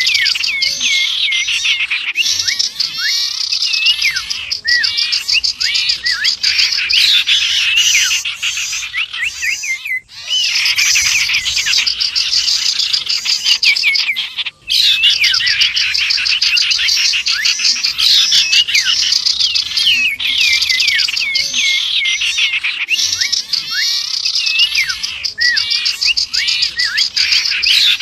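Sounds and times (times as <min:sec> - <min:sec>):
songbirds chirping and whistling: 0:00.0 - 0:28.0.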